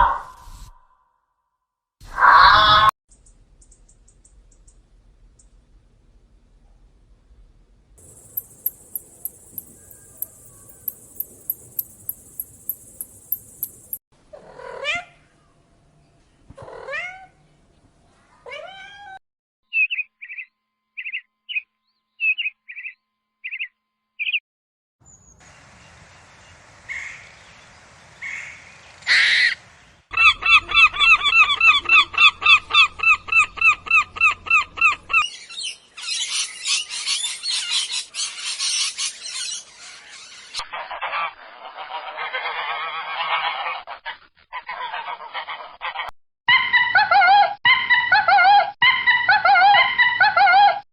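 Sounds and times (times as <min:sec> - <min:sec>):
fast chattering call: 0:08.0 - 0:14.0
rising animal calls: 0:08.0 - 0:14.0
short chirps: 0:08.0 - 0:14.0.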